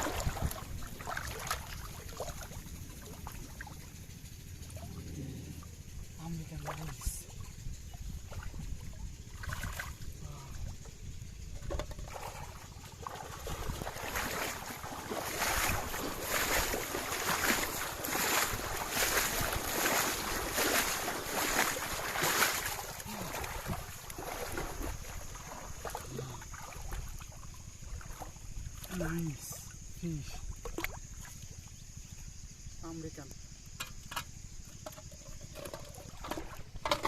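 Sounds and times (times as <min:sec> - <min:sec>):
water splashing: 0:00.0 - 0:05.1, 0:06.2 - 0:10.8, 0:11.6 - 0:29.8.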